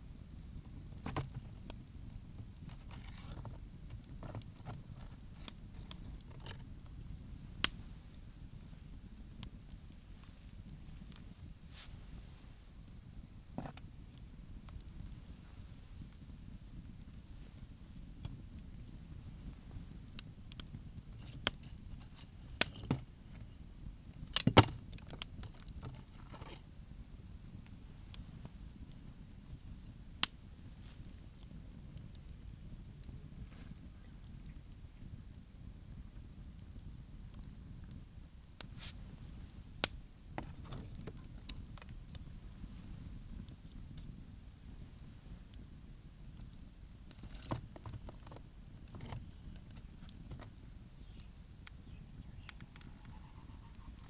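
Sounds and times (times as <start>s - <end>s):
campfire crackling: 0.0s - 54.0s.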